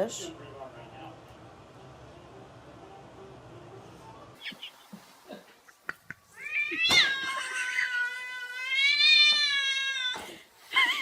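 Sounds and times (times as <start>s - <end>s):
cat meowing: 6.3s - 10.2s.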